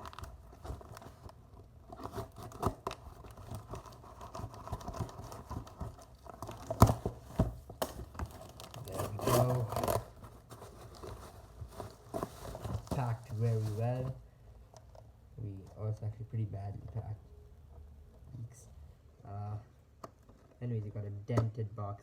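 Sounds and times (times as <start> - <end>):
packaging tearing and rustling: 0.0 - 14.2.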